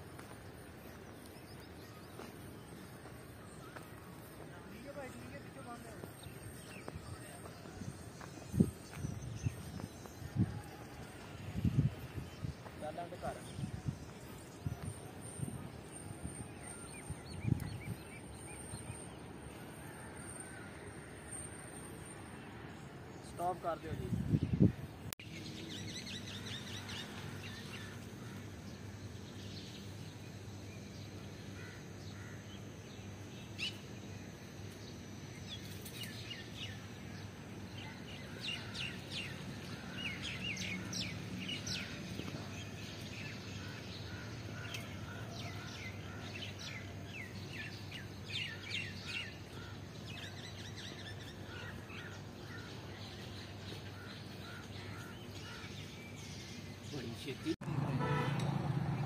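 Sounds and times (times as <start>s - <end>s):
small birds chirping: 0.0s - 57.6s
steady low background hum: 24.0s - 57.5s.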